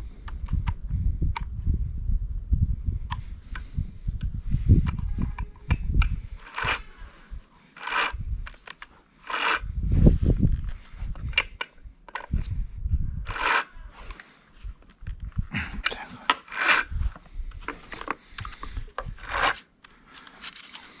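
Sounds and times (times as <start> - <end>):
hand tool scraping: 6.4 - 9.7, 13.3 - 14.8, 16.3 - 18.2, 19.0 - 21.0.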